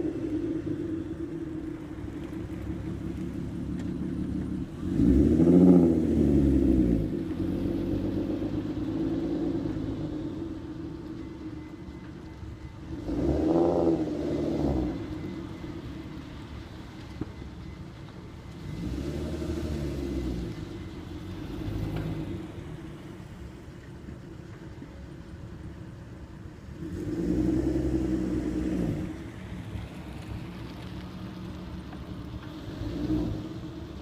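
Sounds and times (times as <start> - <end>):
car engine idling and revving: 0.0 - 34.0.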